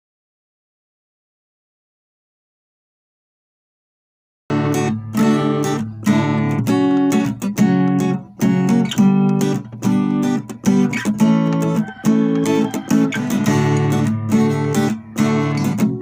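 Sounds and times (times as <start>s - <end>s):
acoustic guitar strumming: 4.5s - 16.0s.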